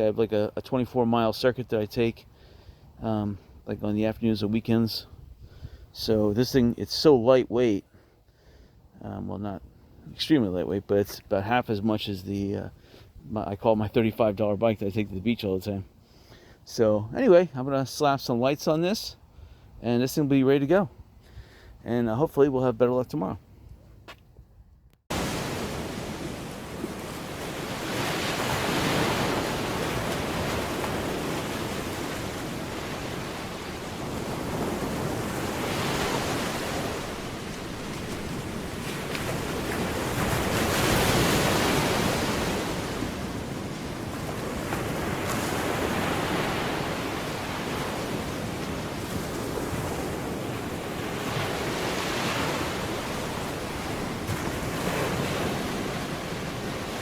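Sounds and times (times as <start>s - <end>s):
ocean surf breaking on shore: 25.1s - 57.0s.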